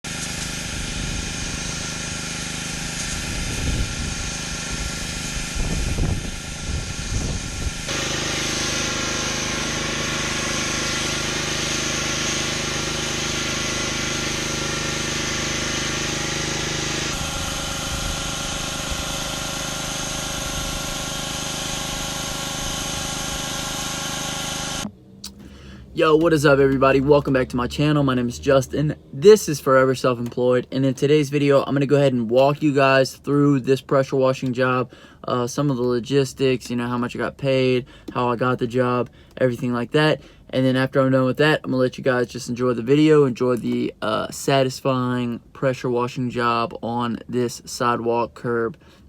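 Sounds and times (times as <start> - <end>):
pressure washer engine running: 0.1 - 27.9.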